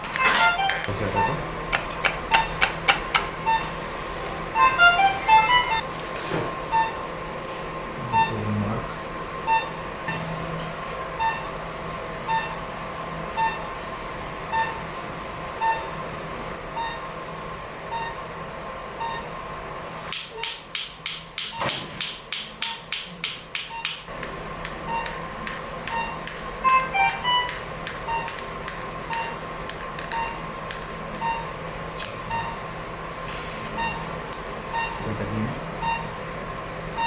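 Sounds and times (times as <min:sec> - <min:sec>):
patient monitor beeping: 0:00.0 - 0:05.9, 0:06.6 - 0:07.3, 0:07.9 - 0:17.1, 0:18.9 - 0:19.4, 0:22.6 - 0:37.0
sharp taps or knocks: 0:01.7 - 0:03.4.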